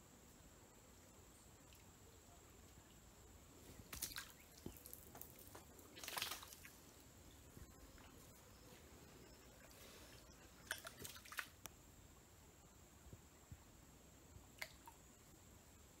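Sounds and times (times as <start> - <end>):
small splashes on water: 3.8 - 6.8, 10.6 - 11.6.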